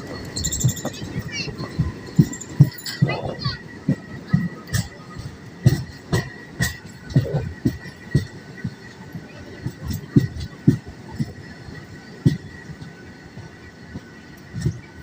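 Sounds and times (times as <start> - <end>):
train wheels knocking over rail joints: 0.0 - 15.0.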